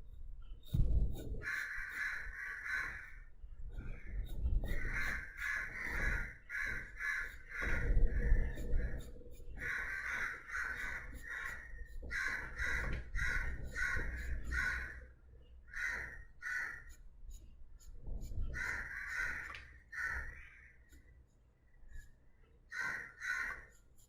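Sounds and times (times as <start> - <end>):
crows cawing: 1.4 - 15.1, 15.7 - 17.0, 18.5 - 21.0, 22.7 - 23.8.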